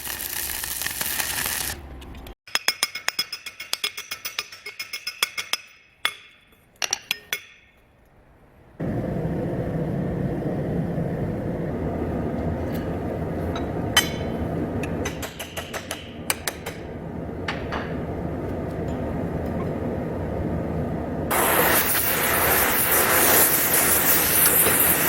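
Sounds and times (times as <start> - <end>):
hammer striking steel on anvil: 2.5 - 7.9, 13.6 - 17.9
low rushing roar: 8.8 - 15.3, 16.1 - 23.3.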